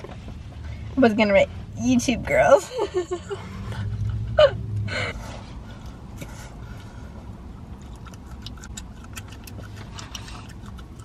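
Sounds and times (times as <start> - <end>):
low steady hum: 0.0 - 11.0
chewing taco: 5.7 - 11.0
wet mouth clicks: 7.6 - 11.0.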